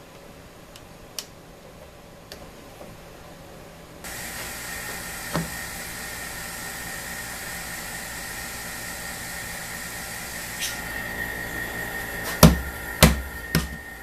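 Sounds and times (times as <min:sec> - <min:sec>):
vacuum pump rushing with whine: 0:04.0 - 0:14.0.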